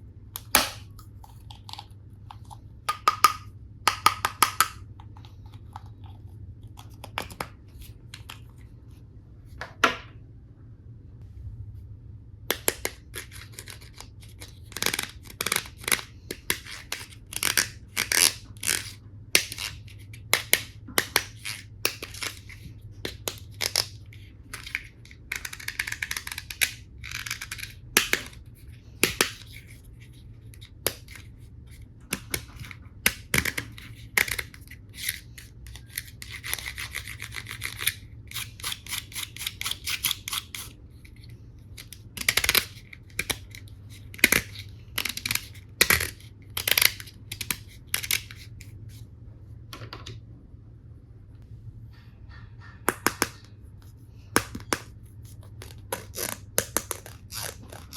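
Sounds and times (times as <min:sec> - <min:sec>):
plastic toy pieces clicking: 0:14.7 - 0:19.7, 0:24.5 - 0:28.4, 0:41.8 - 0:43.6, 0:44.2 - 0:48.4.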